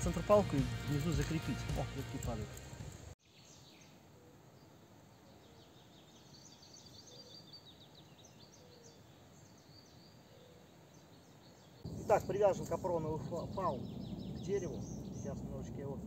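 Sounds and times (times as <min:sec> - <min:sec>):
small birds twittering: 0:03.2 - 0:16.0.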